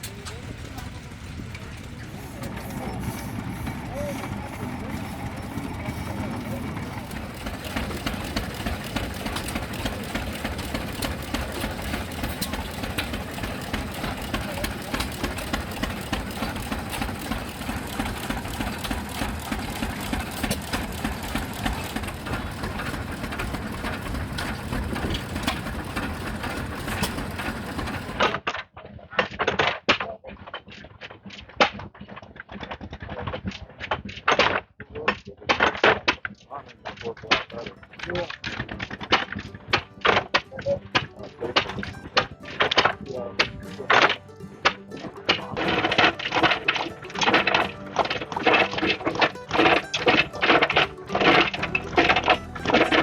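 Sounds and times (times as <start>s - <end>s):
machinery clattering: 0.0s - 28.6s, 29.3s - 53.0s
sharp clicks and knocks: 2.4s - 28.6s.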